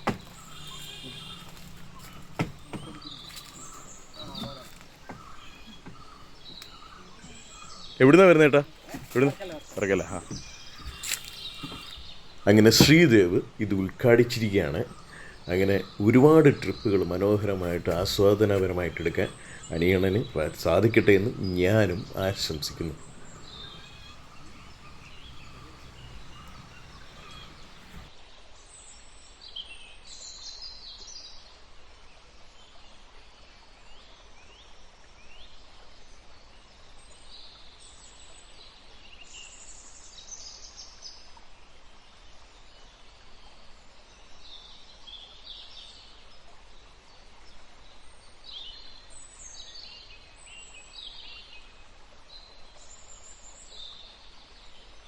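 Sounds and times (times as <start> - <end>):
birds chirping: 0.0 - 28.1
faint background noise: 0.0 - 28.1.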